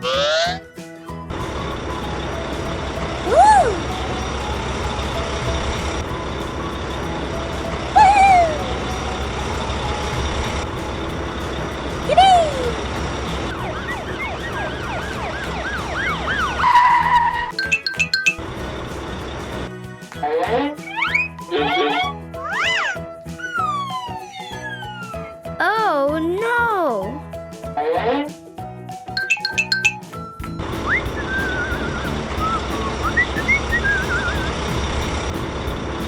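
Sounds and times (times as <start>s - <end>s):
truck engine rumble: 1.2s - 19.7s, 30.4s - 36.0s
chirps rising and falling: 12.1s - 18.4s, 20.8s - 25.2s, 29.2s - 30.1s, 30.7s - 35.0s.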